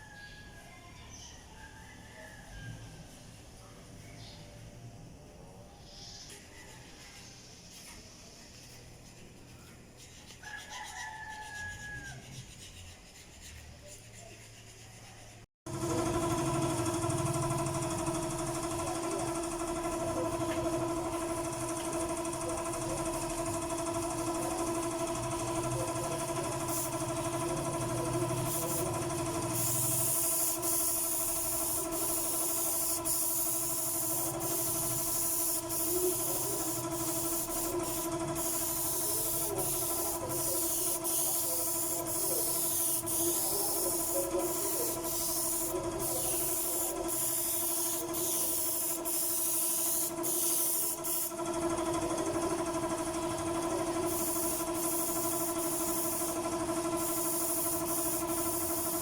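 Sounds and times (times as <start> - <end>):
air compressor motor hum: 15.7 - 59.0
spray gun hissing: 23.8 - 51.4, 54.0 - 59.0.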